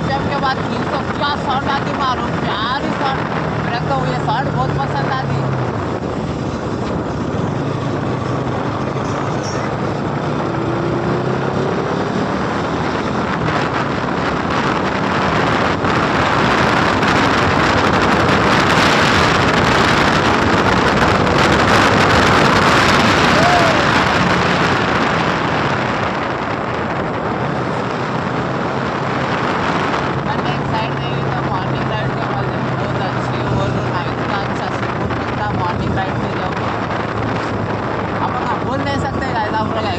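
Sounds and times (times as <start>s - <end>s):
motorcycle riding at speed: 0.0s - 39.9s
wind rushing over microphone: 0.0s - 39.9s.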